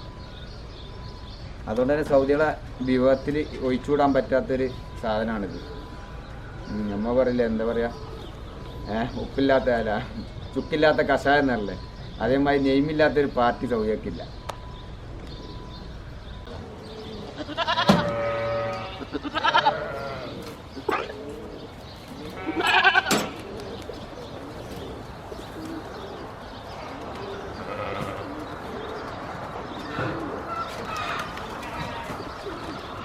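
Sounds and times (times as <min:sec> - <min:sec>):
sheep and goats bleating: 0:17.4 - 0:20.6, 0:22.2 - 0:23.4, 0:26.7 - 0:28.4, 0:31.5 - 0:32.3.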